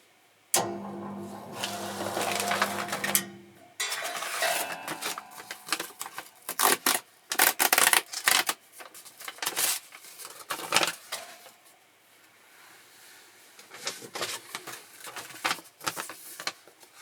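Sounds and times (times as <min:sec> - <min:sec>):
machine parts clacking: 0:00.6 - 0:07.7.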